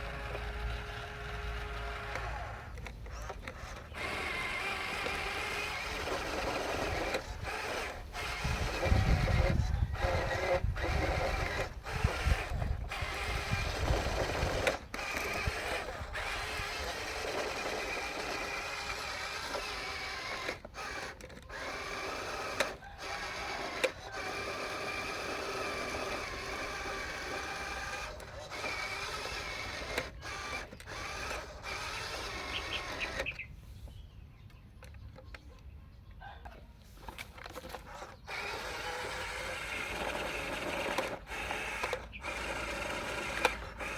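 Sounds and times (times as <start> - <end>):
electric gear motors whirring: 0.0 - 33.5, 36.9 - 43.9.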